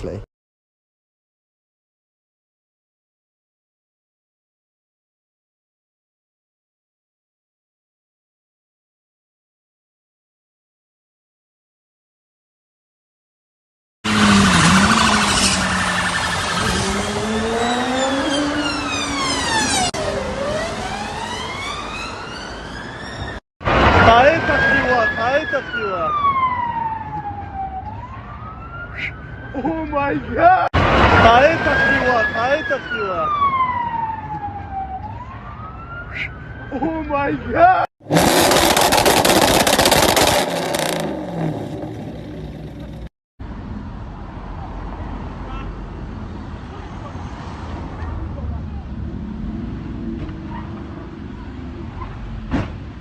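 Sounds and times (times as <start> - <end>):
road traffic noise: 14.0 - 53.0
emergency vehicle siren wailing: 14.1 - 38.4
vehicle clattering and scraping: 51.9 - 53.0.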